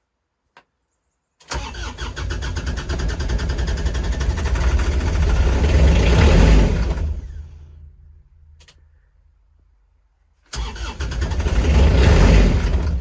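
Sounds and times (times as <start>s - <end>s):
click: 0.5s - 0.7s, 8.6s - 8.9s
diesel engine starting and running rough: 1.5s - 8.7s, 10.5s - 13.0s.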